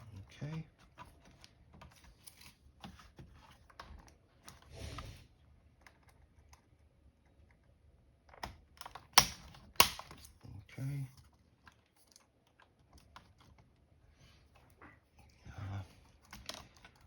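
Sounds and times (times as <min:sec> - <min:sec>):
sharp plastic clack: 0:08.4 - 0:10.3.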